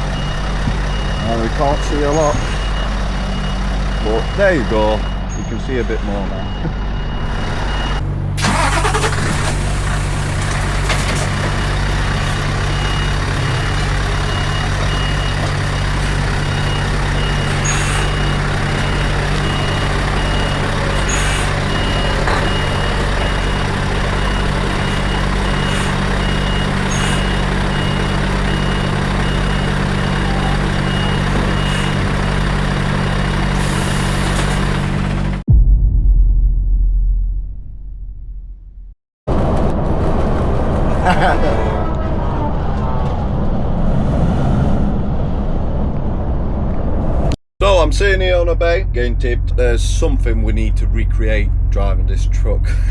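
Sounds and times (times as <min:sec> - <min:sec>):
reversing alarm beeping: 0:00.0 - 0:35.4
truck engine running: 0:00.0 - 0:35.5, 0:39.3 - 0:44.2, 0:47.6 - 0:52.9.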